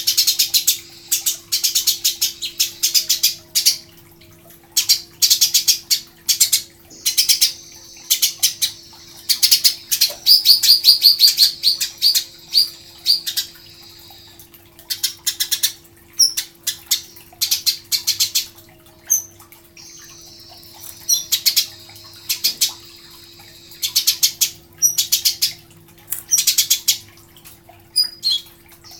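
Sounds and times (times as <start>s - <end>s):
faint steady hum: 0.0s - 28.9s
sparrows chirping: 19.1s - 25.6s.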